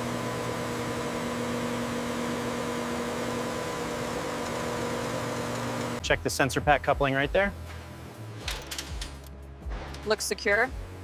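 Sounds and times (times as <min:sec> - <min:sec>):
electrical machine hum: 0:00.0 - 0:06.0.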